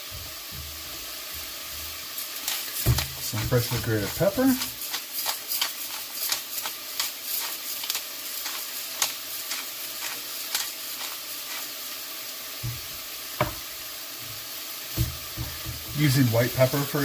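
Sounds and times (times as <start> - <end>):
vegetables sizzling in butter: 0.0 - 17.0
utensil clicking against pot: 2.4 - 11.6
dull knock: 13.4 - 13.6.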